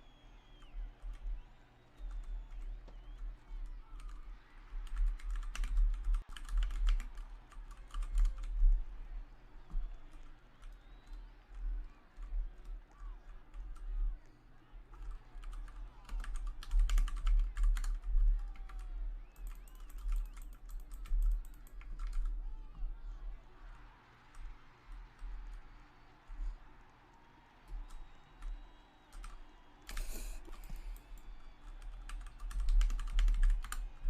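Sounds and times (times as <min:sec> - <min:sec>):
computer keyboard typing: 0:01.9 - 0:08.7, 0:14.9 - 0:22.4, 0:27.7 - 0:34.0.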